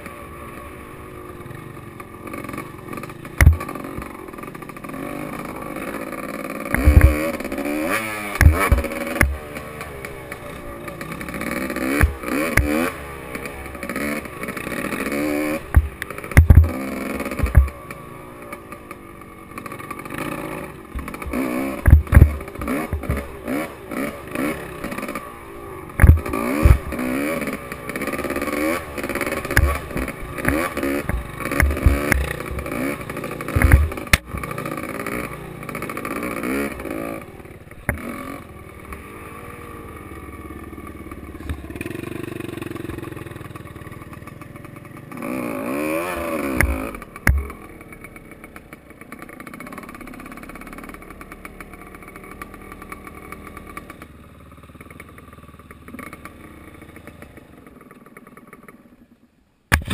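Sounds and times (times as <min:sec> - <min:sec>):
motorcycle engine revving: 0:00.0 - 0:59.9
knocks from motorcycle: 0:03.4 - 0:04.1, 0:06.7 - 0:07.5, 0:08.4 - 0:09.7, 0:11.9 - 0:12.9, 0:15.7 - 0:17.9, 0:21.0 - 0:23.3, 0:26.0 - 0:27.1, 0:29.2 - 0:34.5, 0:37.8 - 0:38.1, 0:41.4 - 0:42.0, 0:46.5 - 0:47.6.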